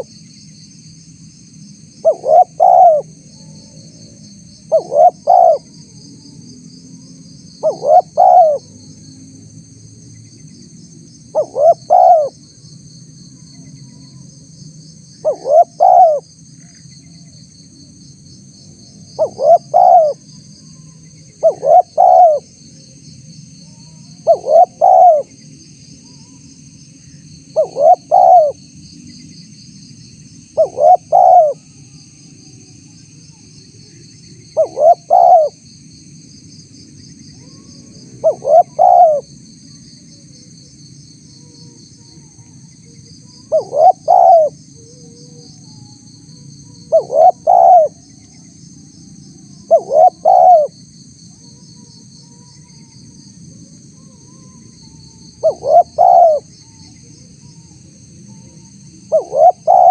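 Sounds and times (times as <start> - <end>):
high insect buzz: 0.0 - 3.2, 3.9 - 59.9
dove cooing: 2.0 - 3.1, 4.7 - 5.7, 7.6 - 8.7, 11.3 - 12.4, 15.2 - 16.2, 19.2 - 20.2, 21.4 - 22.5, 24.2 - 25.3, 27.5 - 28.6, 30.6 - 31.6, 34.6 - 35.6, 37.4 - 39.3, 43.5 - 45.5, 46.8 - 48.0, 49.6 - 50.8, 55.4 - 56.8, 58.3 - 59.9.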